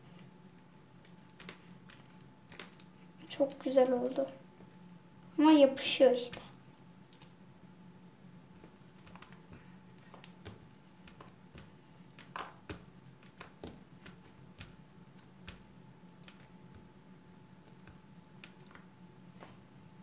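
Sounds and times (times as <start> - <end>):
slime squishing and popping: 1.0 - 2.9, 8.6 - 19.6.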